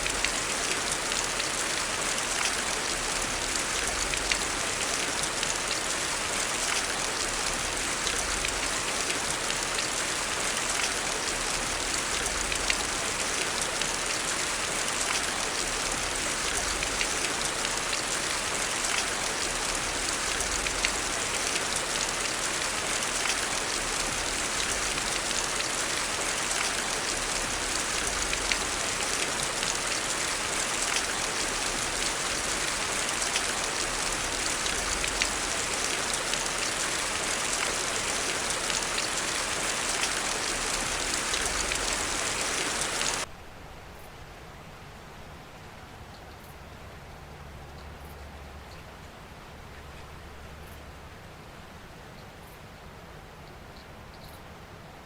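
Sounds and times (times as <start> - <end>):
heavy rain: 0.0 - 43.3.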